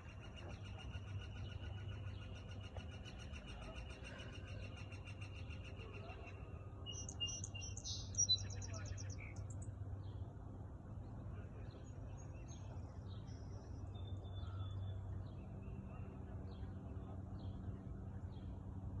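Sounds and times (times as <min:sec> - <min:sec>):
steady low hum: 0:00.0 - 0:19.0
birds chirping: 0:00.1 - 0:10.2.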